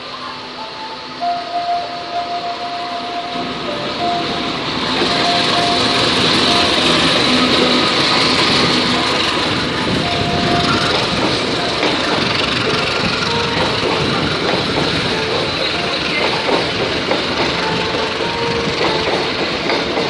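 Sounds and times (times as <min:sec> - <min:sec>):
diesel locomotive engine passing: 0:00.0 - 0:20.0
train wheels on rails: 0:00.0 - 0:20.0.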